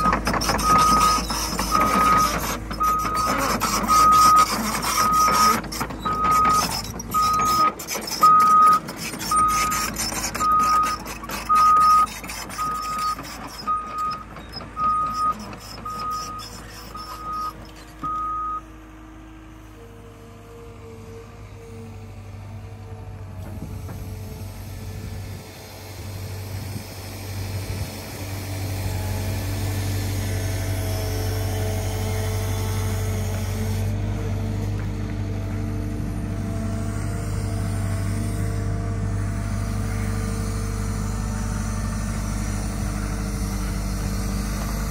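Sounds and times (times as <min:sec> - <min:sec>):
excavator alarm beeping: 0:00.0 - 0:18.6
diesel engine running: 0:00.0 - 0:44.9.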